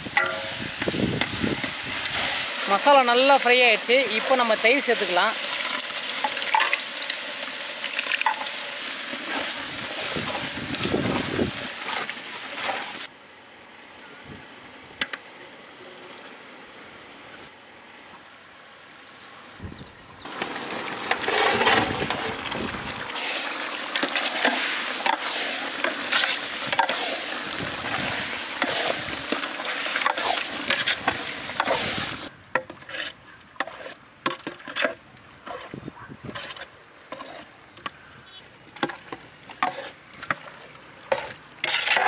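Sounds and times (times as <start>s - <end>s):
prawns sizzling in a pot: 0.0s - 13.1s, 20.2s - 32.4s, 38.3s - 42.0s
metal ladle scraping a pot: 0.2s - 6.9s, 21.0s - 22.4s, 23.2s - 37.8s, 38.9s - 40.0s, 41.1s - 42.0s.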